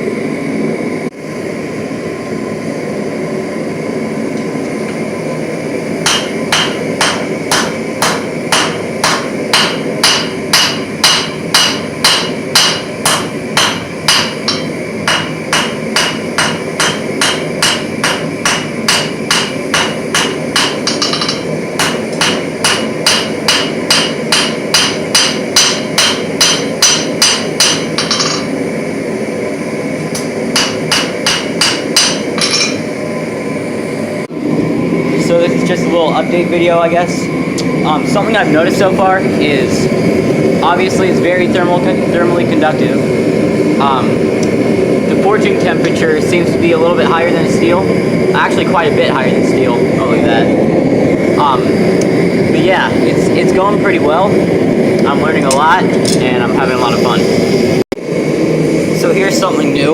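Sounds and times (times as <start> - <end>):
steady background noise: 0.0 - 59.9
hammer striking metal on anvil: 6.0 - 28.6, 30.2 - 32.9.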